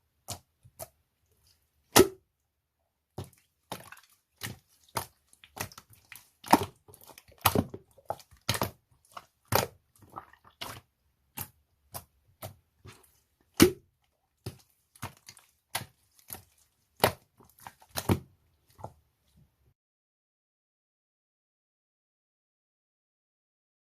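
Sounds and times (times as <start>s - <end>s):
faint slime crackles: 3.1s - 19.5s.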